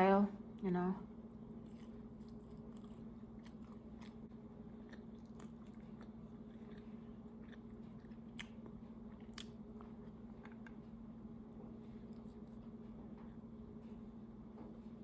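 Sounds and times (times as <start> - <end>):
steady low hum: 0.0 - 15.0
wet mouth clicks chewing: 1.6 - 4.2, 4.8 - 10.8.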